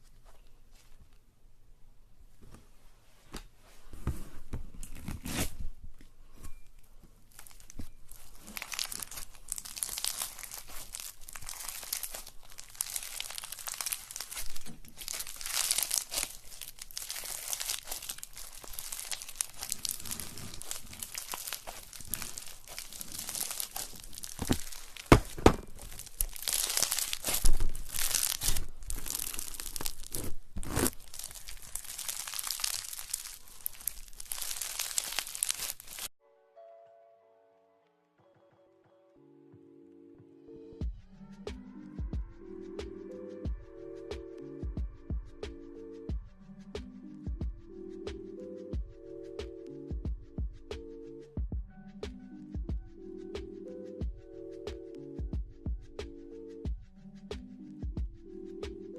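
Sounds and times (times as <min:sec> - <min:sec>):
slime crackling and crinkling: 0:04.8 - 0:05.6, 0:07.2 - 0:36.2.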